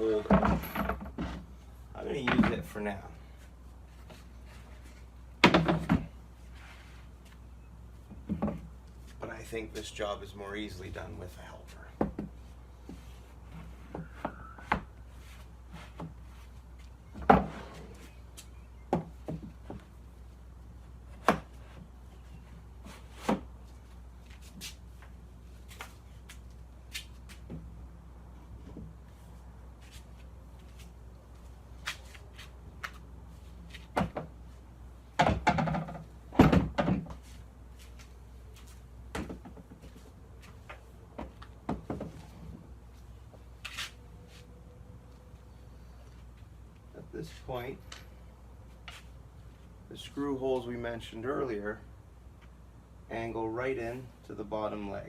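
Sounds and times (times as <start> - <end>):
wooden chair parts knocking: 5.4 - 6.1, 35.2 - 37.2.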